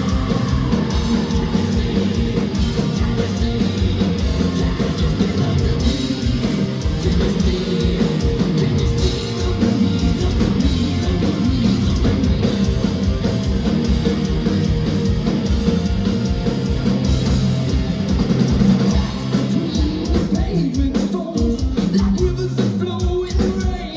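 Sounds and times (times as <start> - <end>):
person singing: 0.0 - 12.8
electric guitars: 0.0 - 23.9
pounding drum kit: 0.0 - 23.9.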